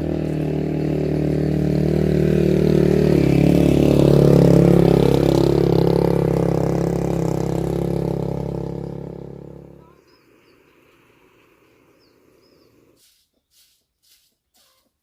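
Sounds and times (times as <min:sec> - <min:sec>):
small engine running: 0:00.0 - 0:10.2.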